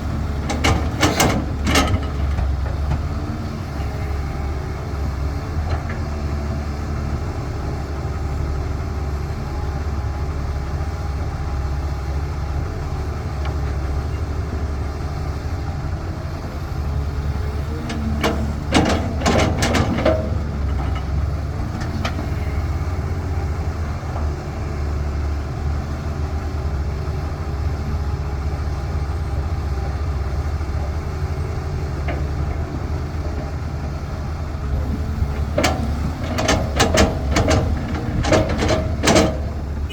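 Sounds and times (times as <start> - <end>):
excavator diesel engine running: 0.0 - 39.9
sharp knocks and clatter: 17.9 - 22.3, 34.8 - 39.9.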